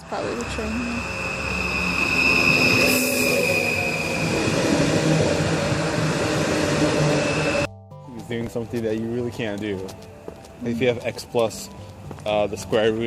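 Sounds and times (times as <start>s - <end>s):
rumble of train cars: 0.0s - 7.7s
train wheels squealing on rails: 0.1s - 7.7s.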